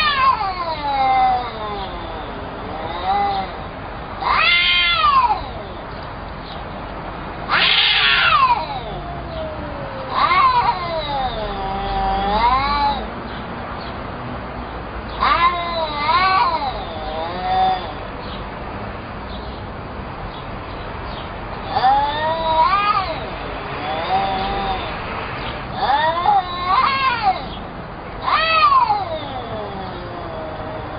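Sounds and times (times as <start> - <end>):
cat yowling: 0.0 - 6.0, 7.4 - 13.1, 15.1 - 18.0, 21.6 - 30.9.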